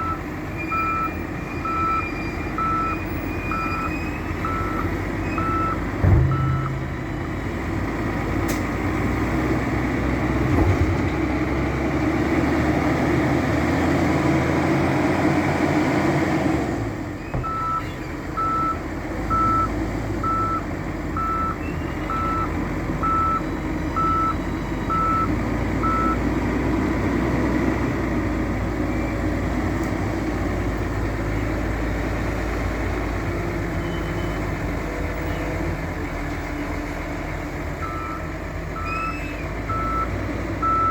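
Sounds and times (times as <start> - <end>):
reversing alarm beeping: 0.0 - 7.0, 17.4 - 17.8, 18.4 - 20.6, 21.2 - 26.2, 37.8 - 40.9
diesel engine running under load: 0.0 - 40.9.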